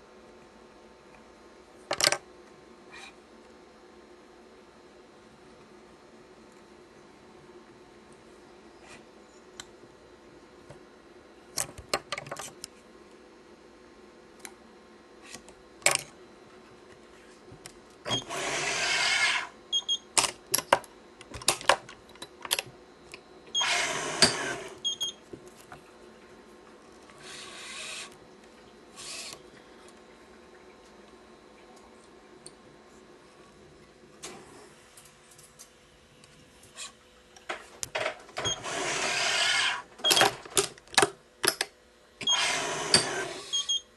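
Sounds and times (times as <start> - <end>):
clicks and taps of tools: 40.1 - 41.8.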